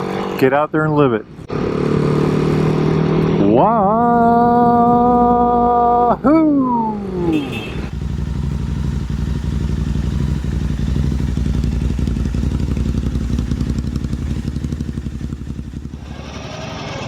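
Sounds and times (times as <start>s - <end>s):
motorcycle engine running: 7.0s - 17.0s.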